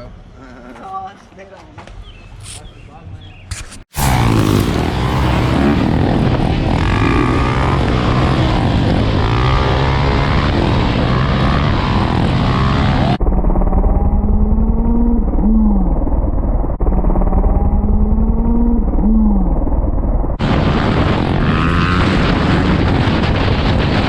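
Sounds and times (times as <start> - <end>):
street noise: 0.0 - 13.2
motorcycle engine: 3.9 - 24.0.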